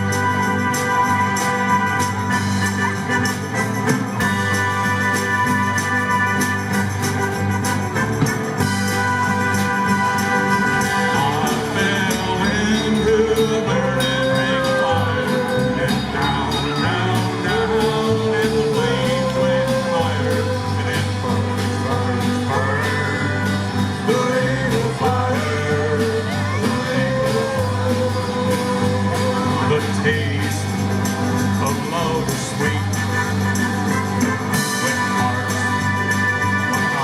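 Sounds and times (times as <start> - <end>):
live band playing: 0.0 - 37.0
person singing: 9.7 - 30.8, 31.6 - 33.4, 34.6 - 37.0.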